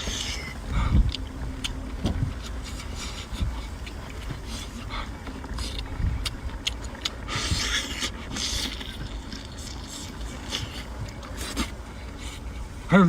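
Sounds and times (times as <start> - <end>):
chewing: 0.0 - 12.7
steady low rumble: 0.0 - 13.0.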